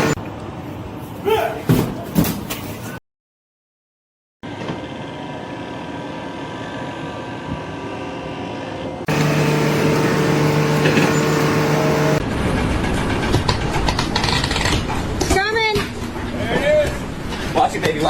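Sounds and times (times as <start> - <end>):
heavy engines running: 0.0 - 0.2, 4.5 - 14.0
steady droning tone: 9.1 - 12.2
rough machine noise: 9.1 - 14.7.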